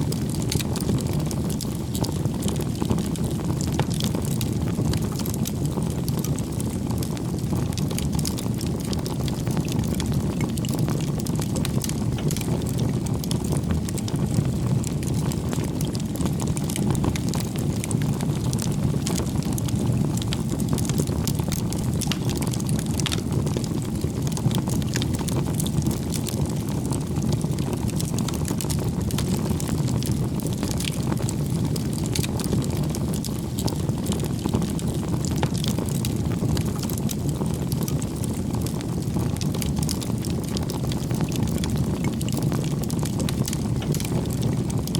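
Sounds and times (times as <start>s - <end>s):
fire crackling and popping: 0.0s - 44.9s
flames rushing: 0.0s - 44.9s.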